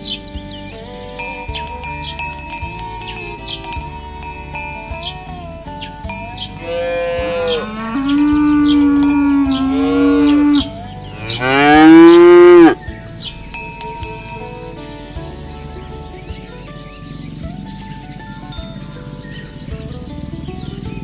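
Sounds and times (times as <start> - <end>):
bell-like ringing: 1.2 - 10.6, 13.3 - 15.2
cow mooing: 6.1 - 12.8.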